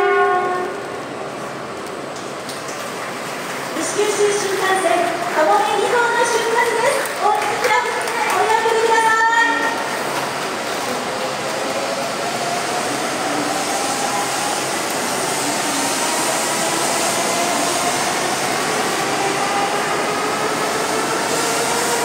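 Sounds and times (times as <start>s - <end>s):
train rushing noise: 0.0s - 22.0s.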